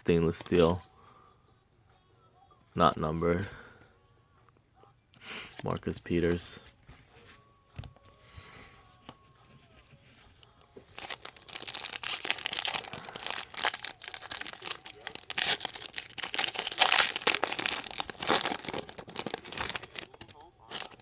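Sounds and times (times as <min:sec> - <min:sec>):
card pack wrapper tearing: 0:10.5 - 0:21.0.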